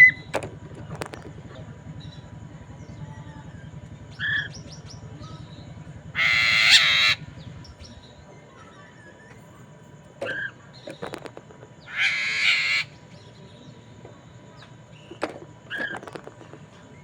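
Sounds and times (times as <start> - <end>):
bird harsh rasping call: 6.1 - 7.9, 11.8 - 13.0.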